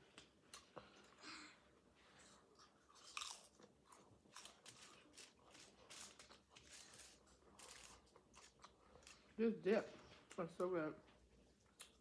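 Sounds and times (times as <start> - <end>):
potato chip crunching: 2.9 - 9.2.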